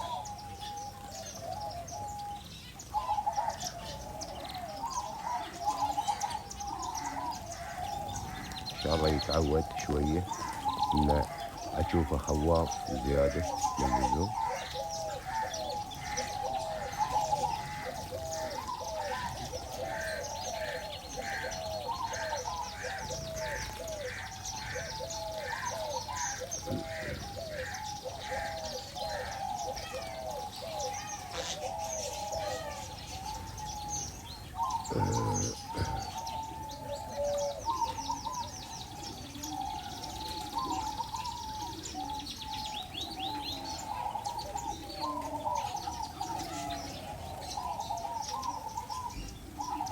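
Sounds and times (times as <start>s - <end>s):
birds calling repeated notes: 0.0s - 49.9s
high twittering chirps: 8.8s - 14.5s.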